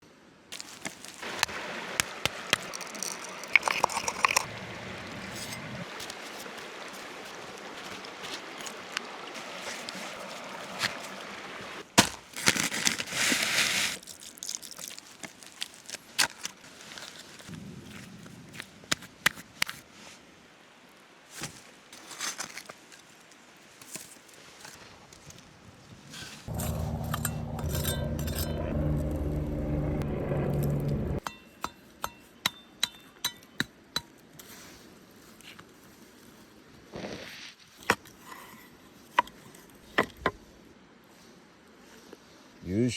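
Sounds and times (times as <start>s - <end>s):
campfire crackling and hissing: 0.5s - 20.8s.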